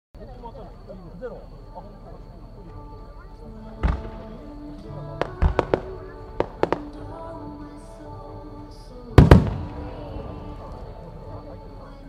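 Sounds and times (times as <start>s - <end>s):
fireworks sharp bangs: 3.8s - 4.4s, 5.2s - 7.2s, 9.2s - 10.5s
fireworks booming bursts: 3.8s - 4.5s, 5.2s - 7.2s, 9.2s - 10.6s.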